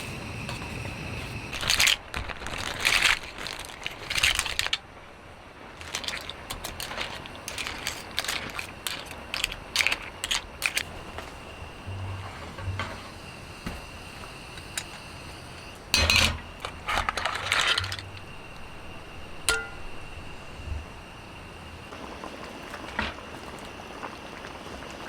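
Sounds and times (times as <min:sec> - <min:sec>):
cookware and dishes clattering: 0:15.9 - 0:18.4, 0:19.5 - 0:19.9
sharp ringing clink: 0:19.5 - 0:20.0.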